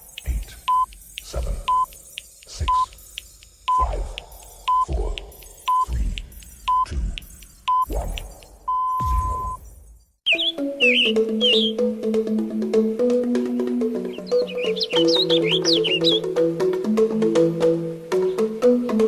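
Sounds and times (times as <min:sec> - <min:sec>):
electronic countdown beeps: 0:00.0 - 0:09.6.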